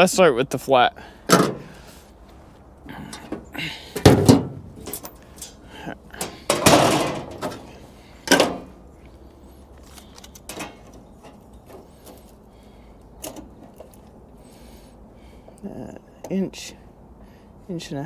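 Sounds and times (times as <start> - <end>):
light taps and clicks of tools: 8.3 - 12.4, 13.0 - 14.2.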